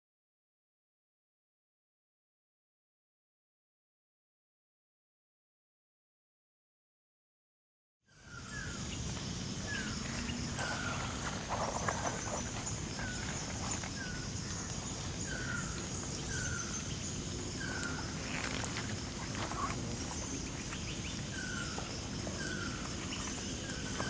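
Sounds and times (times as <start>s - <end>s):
insects droning: 8.1s - 24.0s.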